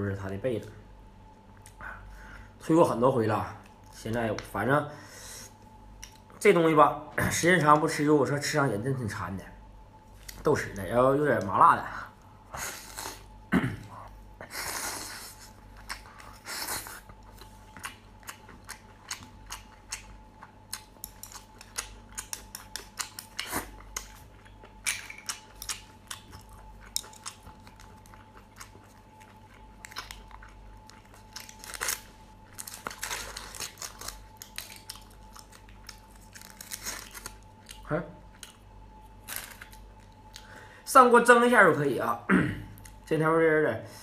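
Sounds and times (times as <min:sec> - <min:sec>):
person chewing wet smacks: 0:16.9 - 0:31.6.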